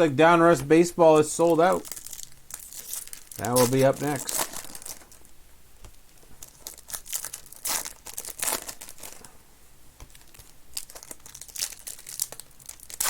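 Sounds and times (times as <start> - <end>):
wrappers crinkling and tearing: 1.2 - 5.4, 6.1 - 9.3, 10.1 - 13.0.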